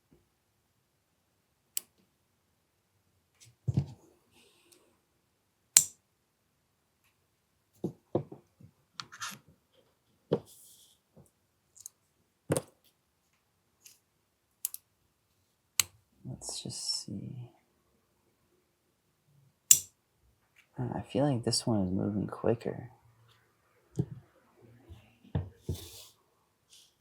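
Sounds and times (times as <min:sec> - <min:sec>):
small plastic parts clicking: 0:14.6 - 0:14.9.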